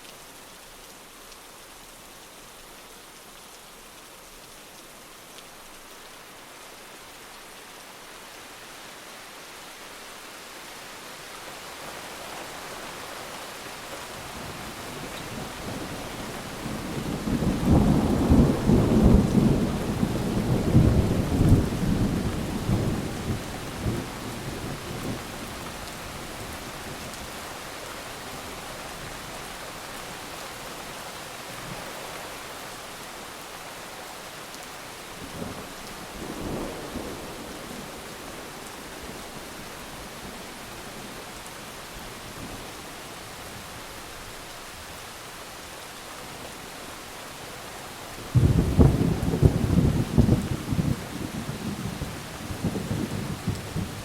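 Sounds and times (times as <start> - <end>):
heavy rain: 0.0 - 54.0
thunder rolling: 48.3 - 54.0.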